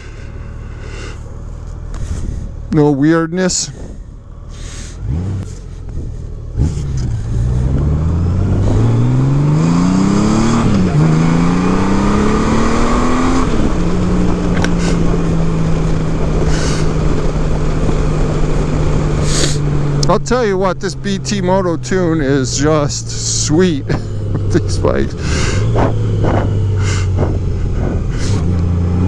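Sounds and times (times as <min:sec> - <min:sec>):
motorcycle engine pulling hard: 0:00.0 - 0:29.0.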